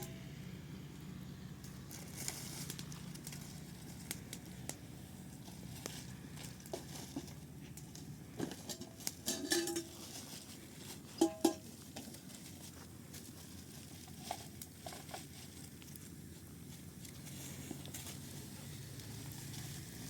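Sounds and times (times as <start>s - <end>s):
dishes and utensils clinking: 8.7s - 10.0s, 11.2s - 11.7s.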